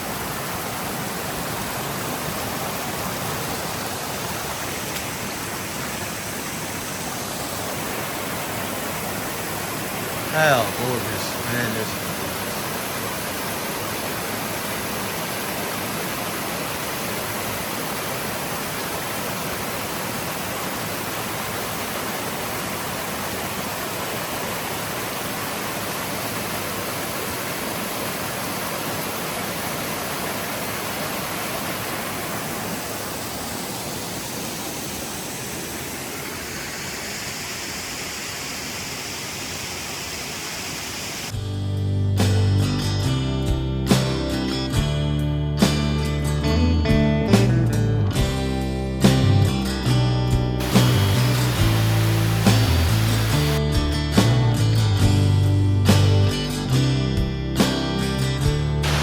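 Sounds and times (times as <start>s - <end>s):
waterfalls rushing: 0.0s - 41.4s, 50.6s - 53.6s.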